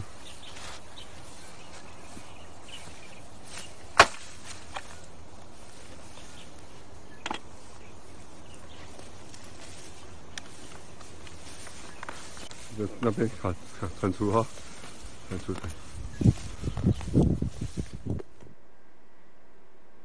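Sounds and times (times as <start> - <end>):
outdoor background hiss: 0.0 - 20.0
sharp cracks: 3.9 - 4.9.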